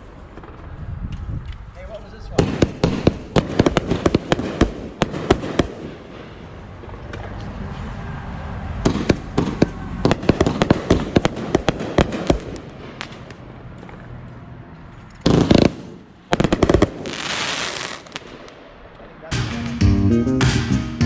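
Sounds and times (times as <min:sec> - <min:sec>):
fireworks cracking: 0:02.3 - 0:07.4, 0:08.8 - 0:14.0, 0:15.2 - 0:19.7.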